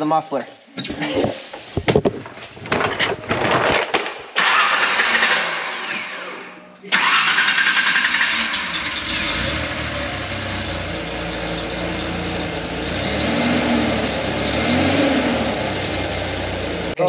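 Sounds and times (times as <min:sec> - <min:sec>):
truck engine starting and idling: 0:04.4 - 0:17.0.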